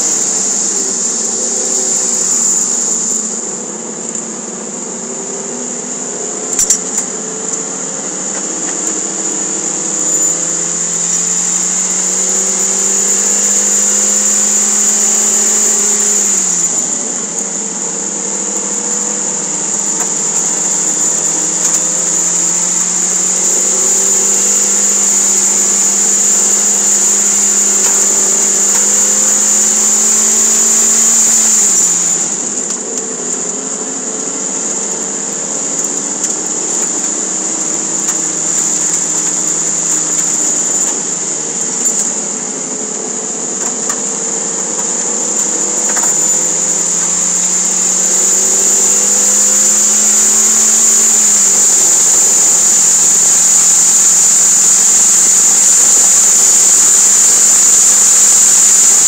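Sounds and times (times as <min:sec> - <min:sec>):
high-pitched hiss: 0:00.0 - 0:59.0.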